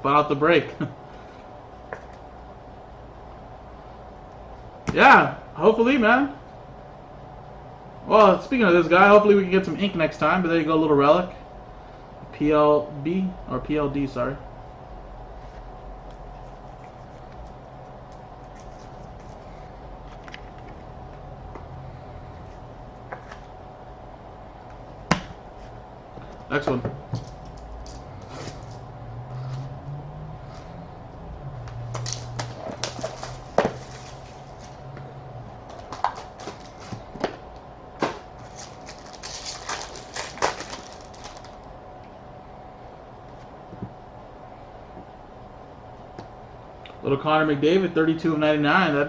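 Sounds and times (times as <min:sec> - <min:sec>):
steady low hum: 0:00.0 - 0:49.0
trading cards clicking and snapping: 0:31.7 - 0:34.1, 0:38.5 - 0:41.5.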